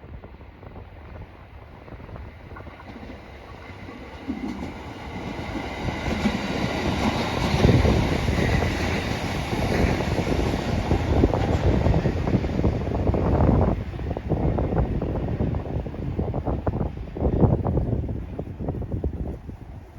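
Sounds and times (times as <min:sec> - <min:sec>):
train wheels clattering over rails: 0:02.4 - 0:13.0.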